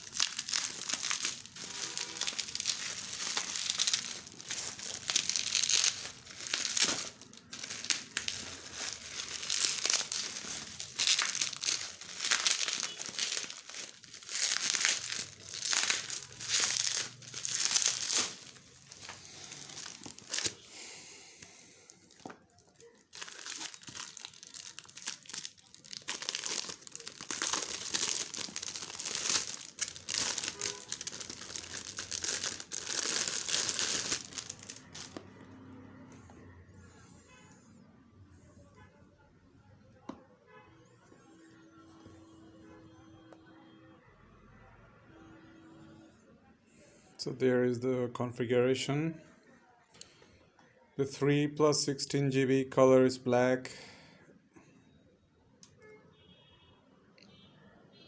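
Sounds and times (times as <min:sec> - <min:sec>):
packaging crinkling and tearing: 0:00.0 - 0:20.7, 0:22.0 - 0:35.3.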